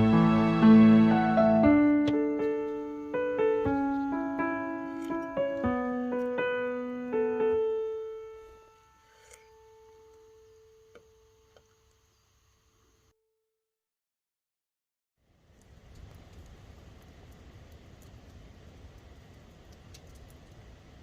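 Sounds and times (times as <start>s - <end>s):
slow piano music: 0.0s - 11.4s.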